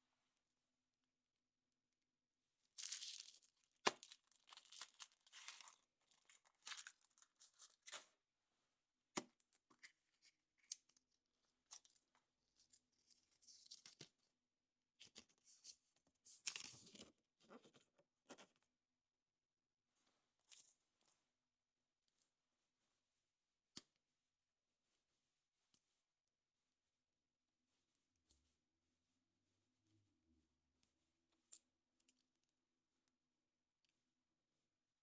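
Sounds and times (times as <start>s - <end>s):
foil wrapper tearing and crinkling: 2.8s - 5.8s.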